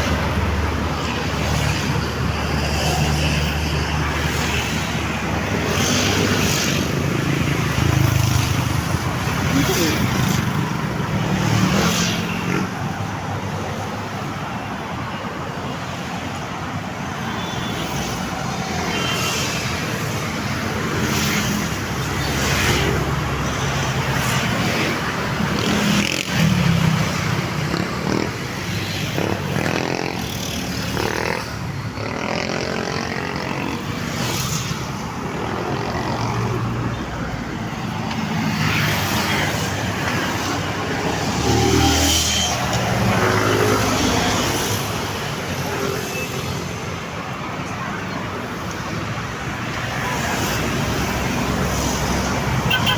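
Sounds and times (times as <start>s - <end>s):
road traffic passing: 0.0s - 52.9s.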